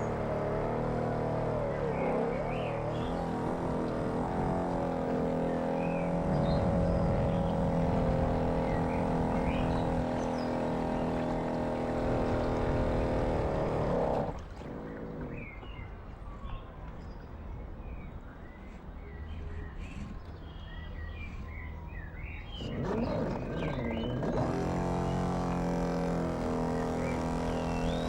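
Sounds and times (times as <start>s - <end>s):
model boat motor running: 0.0s - 15.4s, 22.8s - 28.0s
birds chirping: 0.0s - 28.0s.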